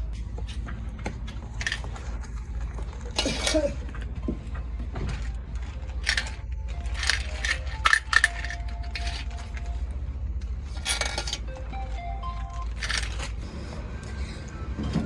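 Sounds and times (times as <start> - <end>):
metal tools clinking: 0.4 - 4.1, 5.6 - 9.8, 10.7 - 11.6, 12.3 - 13.4.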